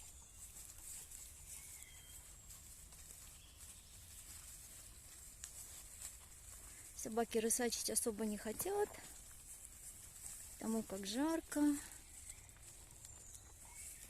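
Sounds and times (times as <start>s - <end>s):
faint bird chirps: 0.0s - 4.2s, 11.8s - 14.0s.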